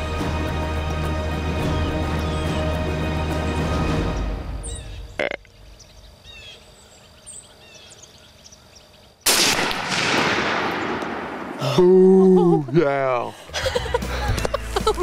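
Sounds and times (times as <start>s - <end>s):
background music: 0.0s - 5.2s, 13.3s - 15.0s
faint small birds chirping: 4.0s - 9.2s
loud gunshot: 9.3s - 11.6s.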